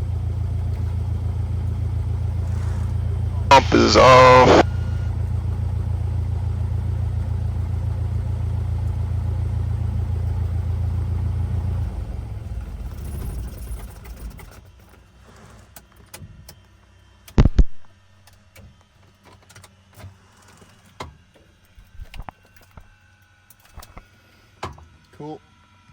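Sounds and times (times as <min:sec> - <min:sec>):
plane engine idling: 0:02.6 - 0:05.1
engine and propeller winding down: 0:07.4 - 0:14.6.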